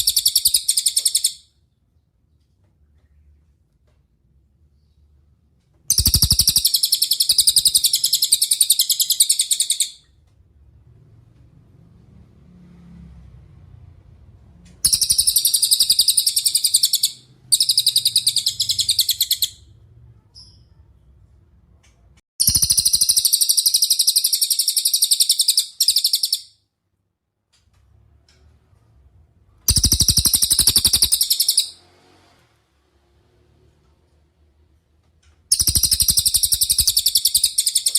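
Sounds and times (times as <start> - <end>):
songbird high-pitched trills: 0.0 - 1.4, 14.9 - 19.6, 29.7 - 31.8, 35.5 - 37.9.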